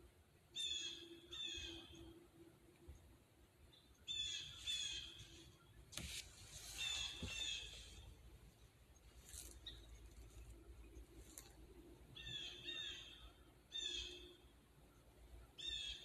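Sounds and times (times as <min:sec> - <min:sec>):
bird harsh calls: 0:04.1 - 0:05.4, 0:06.7 - 0:08.0.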